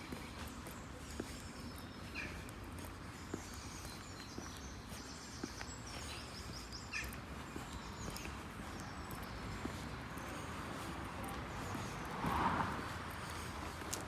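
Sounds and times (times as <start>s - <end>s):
birds chirping: 0.0s - 14.0s
footsteps on pavement: 0.0s - 14.0s.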